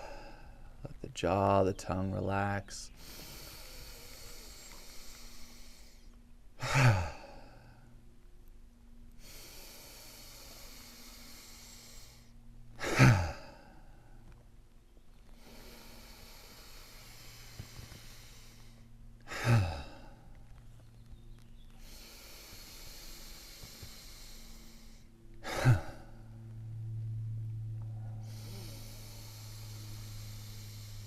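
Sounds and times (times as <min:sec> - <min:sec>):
low steady hum: 0:00.0 - 0:31.0
breathy nose inhales: 0:02.9 - 0:07.9, 0:09.1 - 0:12.4, 0:15.1 - 0:26.4, 0:28.0 - 0:31.0
person sighing: 0:06.6 - 0:07.7, 0:12.8 - 0:13.7, 0:19.3 - 0:20.2, 0:23.7 - 0:26.2.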